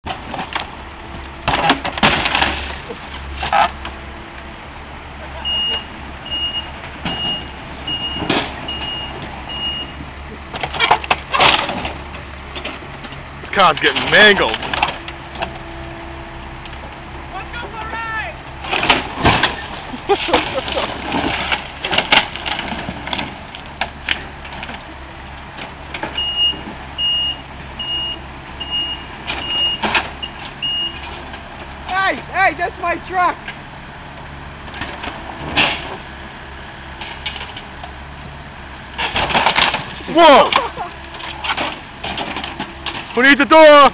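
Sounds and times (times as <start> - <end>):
diesel engine running: 0.0 - 43.9
reversing alarm beeping: 5.4 - 10.0, 26.2 - 31.0
metal clanks: 10.5 - 15.6, 18.6 - 26.8, 38.9 - 43.2.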